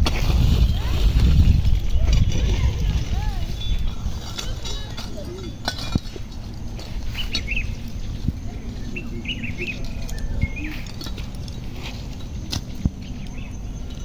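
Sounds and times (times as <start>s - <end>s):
small birds chirping: 2.2s - 5.6s, 6.8s - 14.0s.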